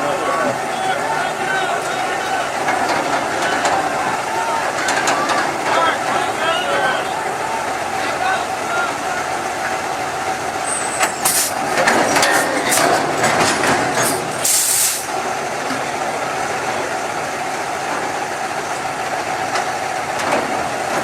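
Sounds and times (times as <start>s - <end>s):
dump truck engine running: 0.0s - 21.0s
air brake hiss: 10.7s - 11.6s, 14.3s - 15.1s.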